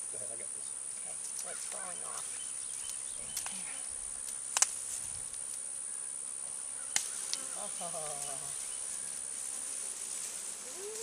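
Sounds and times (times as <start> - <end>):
bee swarm buzzing: 0.6 - 11.0
sharp snaps: 4.2 - 4.8.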